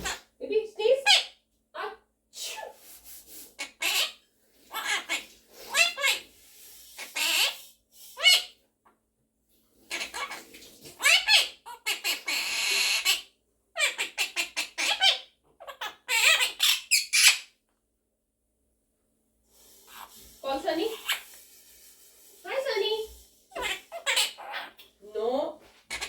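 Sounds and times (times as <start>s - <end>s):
parrot squawking and chattering: 0.0s - 0.3s, 1.0s - 1.4s, 2.4s - 2.8s, 3.6s - 8.6s, 9.9s - 10.4s, 11.0s - 17.5s, 19.9s - 21.8s, 22.4s - 25.0s.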